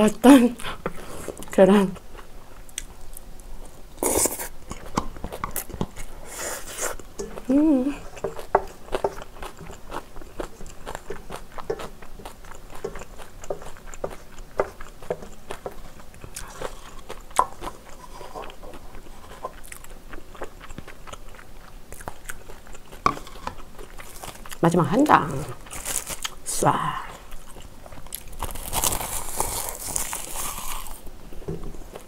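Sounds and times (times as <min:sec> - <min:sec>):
person chewing food: 0:00.6 - 0:24.6, 0:25.2 - 0:26.5, 0:27.1 - 0:32.0
metal spoon scraping a pan: 0:23.0 - 0:23.6.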